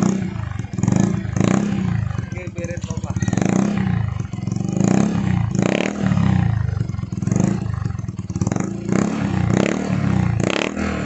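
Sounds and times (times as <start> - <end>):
scooter engine revving: 0.0 - 11.0.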